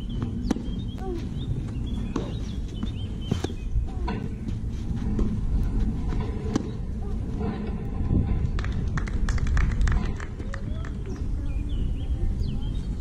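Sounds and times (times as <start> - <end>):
small birds chirping: 0.0 - 4.6, 10.6 - 13.0
low background rumble: 0.0 - 13.0.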